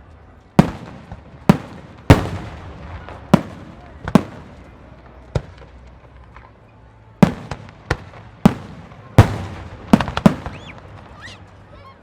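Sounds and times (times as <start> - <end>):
fireworks booming: 0.6 - 5.8, 7.2 - 11.3.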